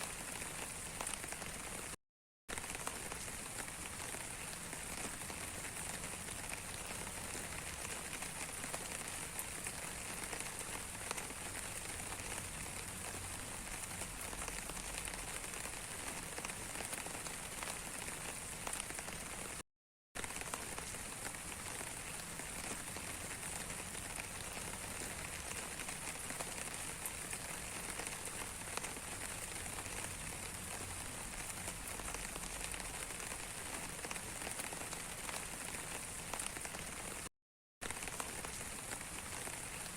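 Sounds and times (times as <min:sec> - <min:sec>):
rain falling on a surface: 0:00.0 - 0:19.6, 0:20.2 - 0:39.9.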